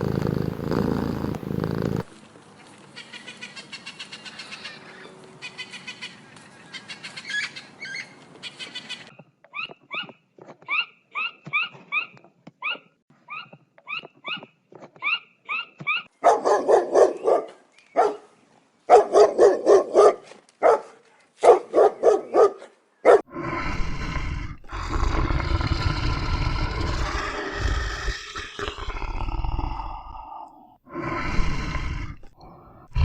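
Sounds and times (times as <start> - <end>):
low rough animal rumble: 0.0 - 2.1
dog barking: 16.2 - 18.3, 18.9 - 23.3.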